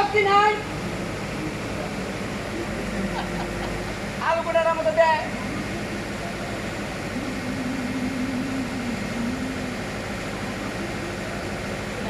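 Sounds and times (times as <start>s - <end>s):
engine drone: 0.0s - 12.0s
low wavering tone: 5.3s - 12.0s.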